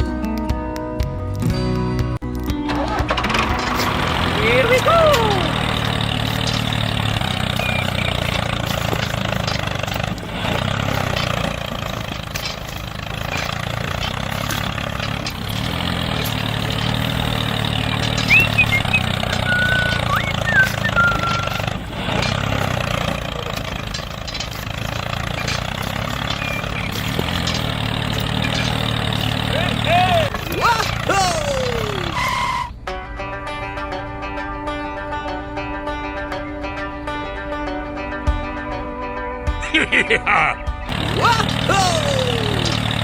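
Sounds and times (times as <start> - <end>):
small tractor engine running: 2.2 - 38.4, 40.7 - 43.0
high squeaks: 2.7 - 32.8.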